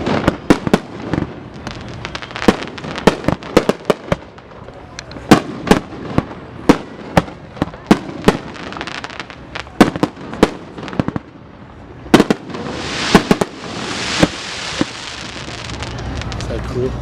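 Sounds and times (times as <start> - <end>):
fireworks bangs and pops: 0.0 - 11.5, 12.1 - 16.8
hissing crackling spray: 12.5 - 16.6.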